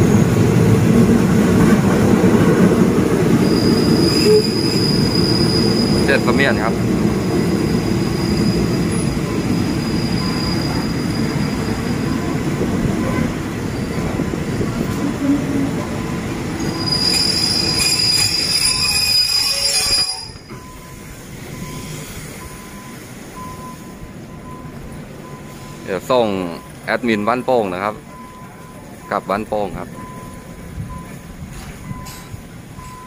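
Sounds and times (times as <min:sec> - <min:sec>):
train coaches rumbling: 0:00.0 - 0:33.0
high metallic wheel squeal: 0:03.4 - 0:06.4, 0:07.5 - 0:12.3, 0:16.6 - 0:21.0.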